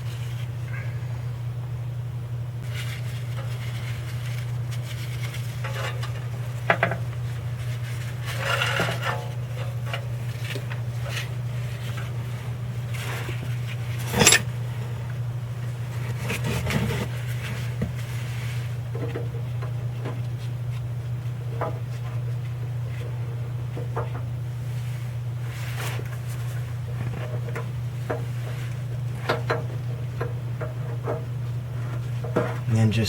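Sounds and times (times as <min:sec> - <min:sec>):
steady low hum: 0:00.0 - 0:33.0
metal tool clinks and scrapes: 0:14.0 - 0:14.5
sharp metal clank: 0:14.1 - 0:14.5.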